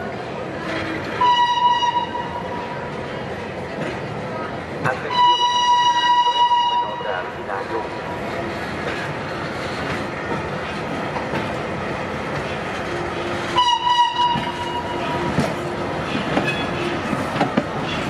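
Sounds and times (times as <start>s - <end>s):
train wheels clacking on rails: 8.2s - 18.0s.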